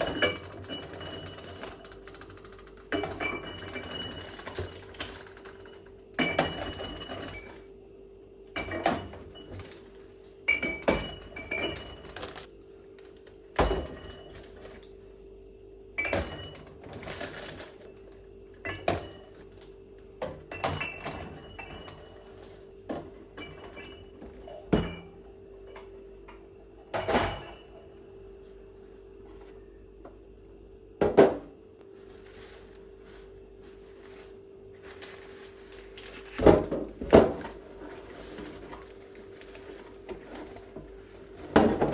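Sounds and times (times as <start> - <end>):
faint steady hum: 0.0 - 41.9
dishes and jars clinking: 20.4 - 22.5, 23.3 - 28.1.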